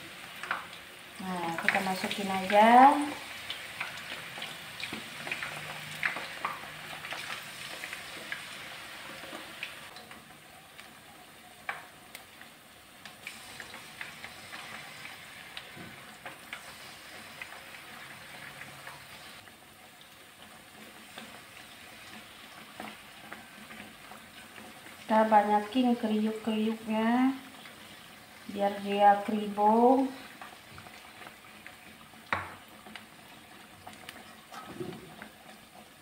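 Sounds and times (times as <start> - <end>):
food sizzling in hot oil: 0.0 - 36.0.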